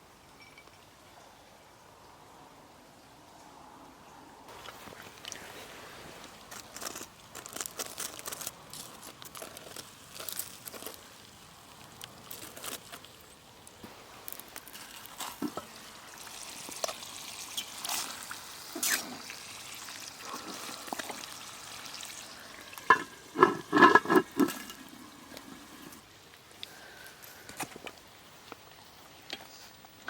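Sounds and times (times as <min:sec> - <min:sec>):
campfire crackling: 0:04.5 - 0:28.9
liquid gurgling: 0:15.2 - 0:26.0.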